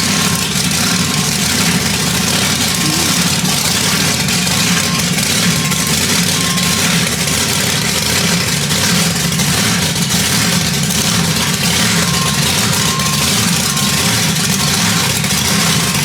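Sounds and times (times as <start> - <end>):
large engine idling: 0.0 - 16.0
faint high beeps: 2.6 - 7.3.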